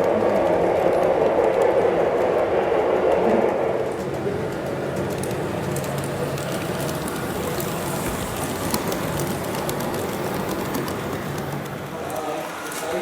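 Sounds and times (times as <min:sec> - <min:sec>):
model train wheels rattling: 0:03.8 - 0:13.0.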